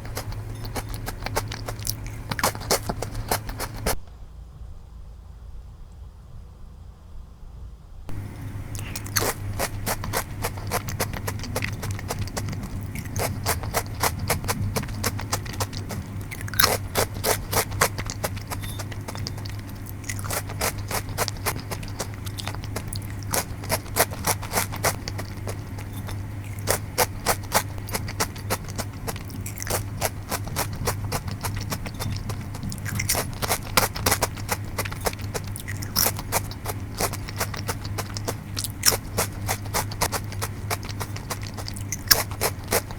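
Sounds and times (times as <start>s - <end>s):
crunching chips: 0.0s - 4.0s, 8.1s - 42.9s
steady low hum: 0.0s - 42.9s.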